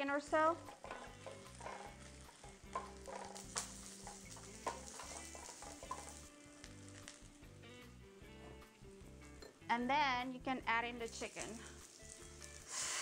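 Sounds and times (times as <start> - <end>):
garlic sizzling in oil: 0.0 - 8.3, 10.8 - 13.0
tongs scraping a wok: 0.5 - 7.3, 11.1 - 13.0.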